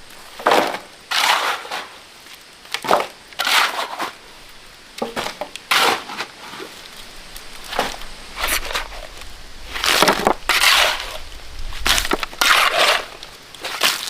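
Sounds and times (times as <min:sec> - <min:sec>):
shovel scraping sand and gravel: 0:00.4 - 0:02.1, 0:02.8 - 0:04.2, 0:05.2 - 0:06.8, 0:07.6 - 0:14.0.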